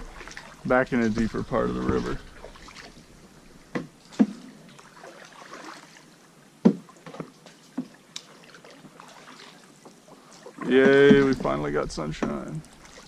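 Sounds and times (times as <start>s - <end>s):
water swishing: 0.0s - 13.0s
paddle knocking on canoe: 3.6s - 4.4s, 6.6s - 7.9s, 10.7s - 12.6s.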